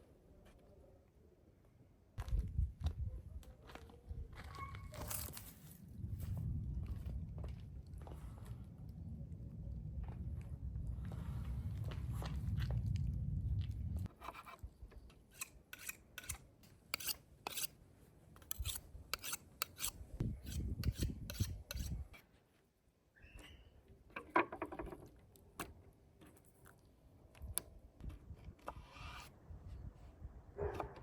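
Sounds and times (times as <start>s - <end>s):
low rumble: 5.8s - 14.1s
scraping and rubbing: 15.4s - 17.7s, 18.4s - 22.2s.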